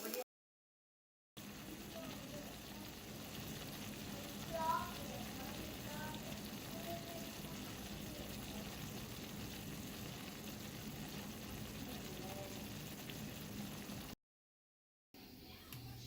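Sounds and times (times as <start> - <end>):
food sizzling in a hot pan: 1.4 - 14.2.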